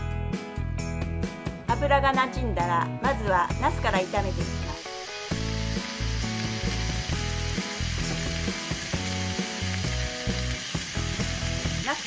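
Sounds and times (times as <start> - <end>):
background music: 0.0 - 12.0
vegetables sizzling in hot oil: 3.4 - 12.0.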